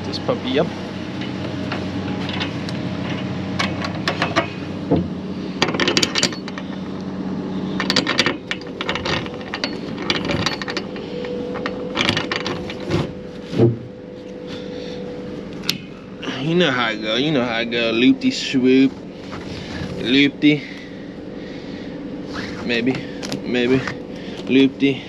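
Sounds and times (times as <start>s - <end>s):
steady mechanical hum: 0.0s - 25.0s
load clicking and rattling: 2.2s - 4.6s, 5.6s - 6.8s, 7.8s - 13.1s.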